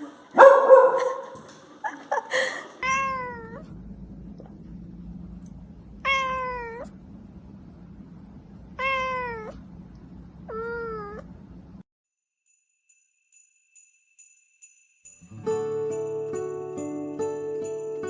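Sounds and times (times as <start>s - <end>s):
cat meowing: 2.8s - 11.8s
steady low hum: 2.9s - 11.8s.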